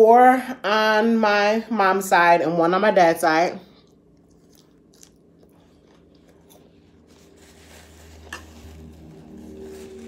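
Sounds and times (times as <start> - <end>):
closed-mouth chewing: 3.8 - 6.7.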